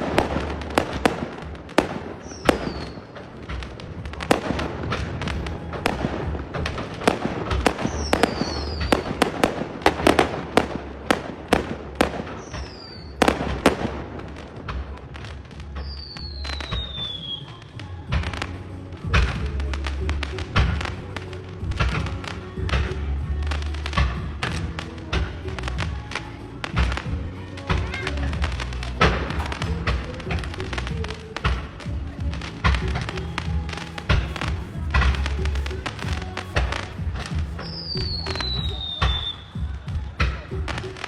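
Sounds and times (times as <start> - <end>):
firework whistles: 0.0 - 14.3, 15.7 - 17.9, 32.5 - 41.0
fireworks bangs and crackles: 0.0 - 41.0.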